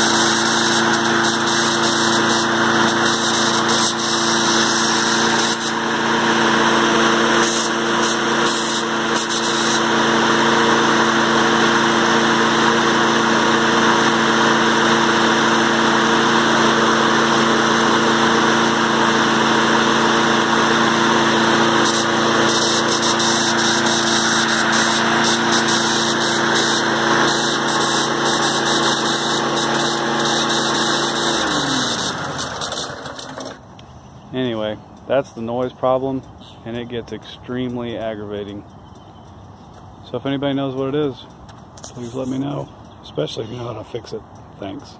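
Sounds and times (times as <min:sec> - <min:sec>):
engine winding down: 0:00.0 - 0:33.8
lawn mower engine running: 0:00.0 - 0:44.9.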